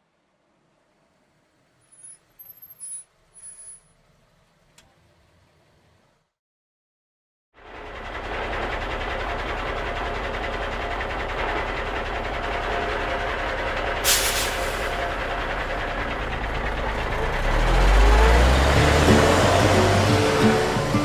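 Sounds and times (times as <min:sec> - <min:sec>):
vehicle engine and road noise: 0:00.0 - 0:06.4, 0:07.6 - 0:21.0
short hiss: 0:14.1 - 0:14.9.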